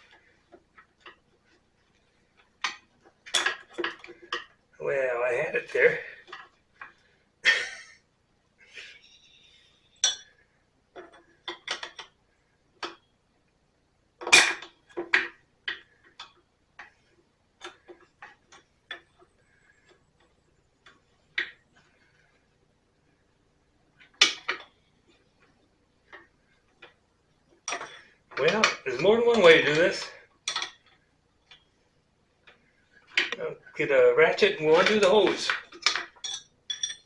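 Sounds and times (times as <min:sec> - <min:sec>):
hand tools clinking on metal: 0:27.7 - 0:31.0, 0:34.3 - 0:37.0.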